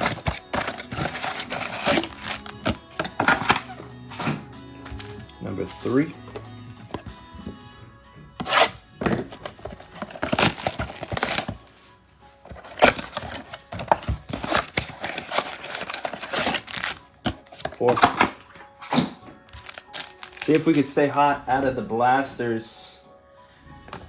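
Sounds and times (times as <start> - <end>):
card pack wrappers ripping: 0.0 - 5.2, 8.4 - 11.7, 12.5 - 21.2
background music: 0.0 - 24.0.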